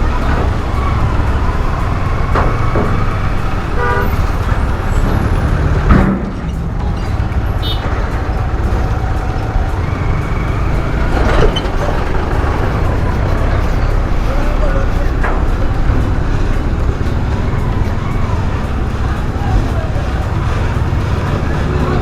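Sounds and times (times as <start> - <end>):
road traffic: 0.0 - 22.0
vehicle horn toot: 3.8 - 4.5, 7.6 - 7.9.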